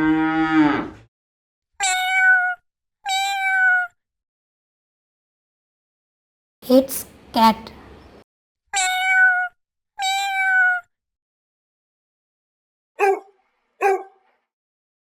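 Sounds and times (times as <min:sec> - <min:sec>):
cat meowing: 0:01.8 - 0:03.9, 0:08.8 - 0:10.9.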